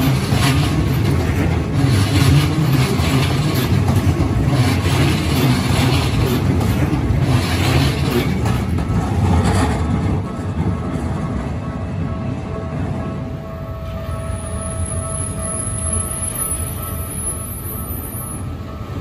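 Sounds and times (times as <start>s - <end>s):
train passing on rails: 0.0s - 19.0s.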